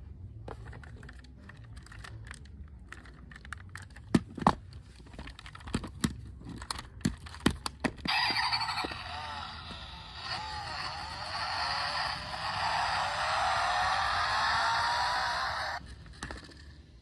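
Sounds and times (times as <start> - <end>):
plastic toy cars clicking and knocking: 0.4 - 17.0.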